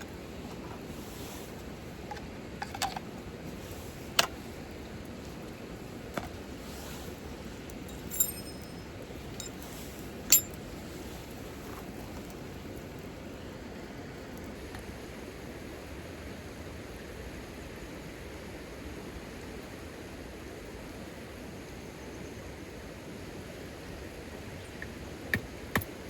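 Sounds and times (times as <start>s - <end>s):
small hard objects clinking: 7.9s - 10.6s.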